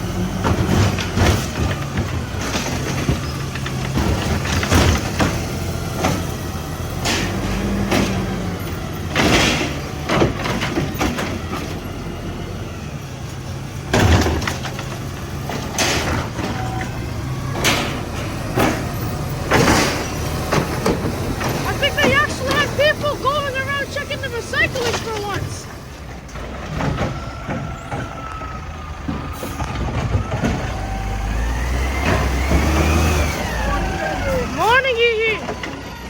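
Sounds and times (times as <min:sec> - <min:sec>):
diesel engine running: 0:00.0 - 0:36.0
metallic clanks and bangs: 0:00.4 - 0:11.8, 0:13.8 - 0:28.3.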